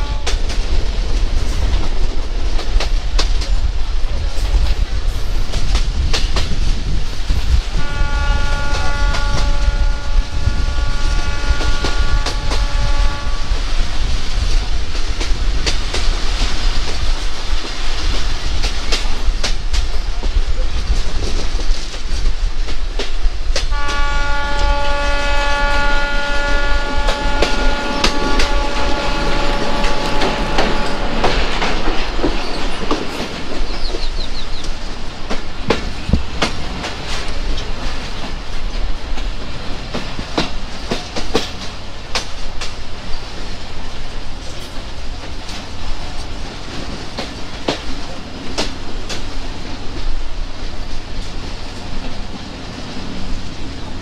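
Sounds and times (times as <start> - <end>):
locomotive horn long blast: 0.0 - 0.5, 7.6 - 13.8, 23.7 - 32.0
wheels clicking over rail joints: 0.0 - 10.0, 10.8 - 54.0
train rumbling on rails: 0.0 - 54.0.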